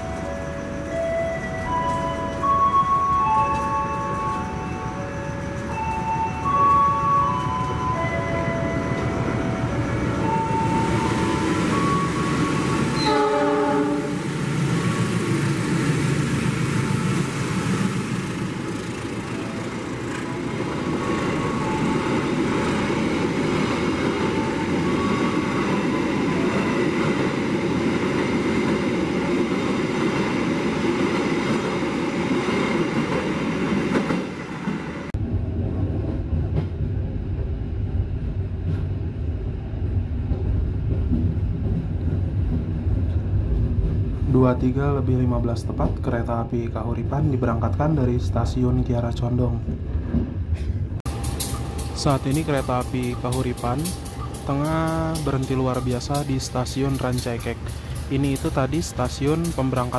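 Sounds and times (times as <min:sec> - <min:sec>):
train cars rumbling past: 0:00.0 - 0:59.9
horn-like tones: 0:13.0 - 0:14.2
train horn blast: 0:13.0 - 0:14.2.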